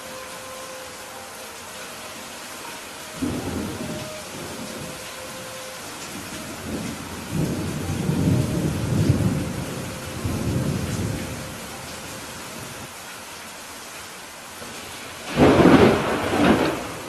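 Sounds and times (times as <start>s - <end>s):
steady rain: 0.0s - 17.0s
thunder rumbling: 3.2s - 12.9s, 14.8s - 17.0s.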